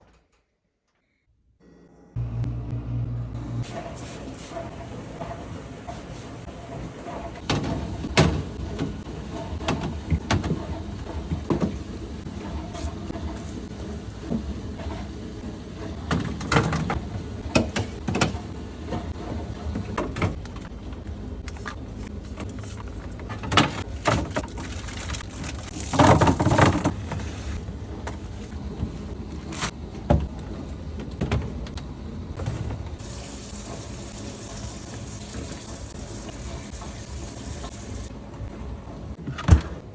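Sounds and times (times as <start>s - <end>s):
steady low hum: 2.0s - 3.9s
containers and drawers clattering: 23.2s - 27.3s.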